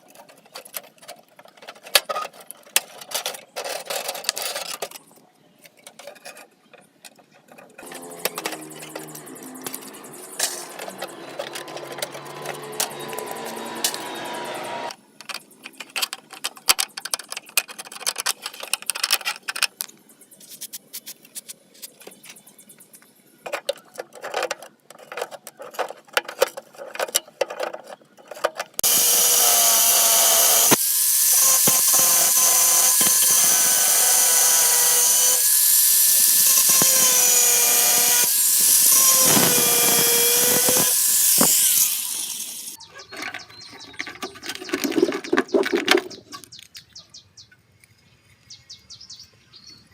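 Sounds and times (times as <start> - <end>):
metal parts clicking and scraping: 0.0 - 22.4, 23.4 - 47.0
electric power tool running: 7.8 - 15.0, 28.8 - 42.8.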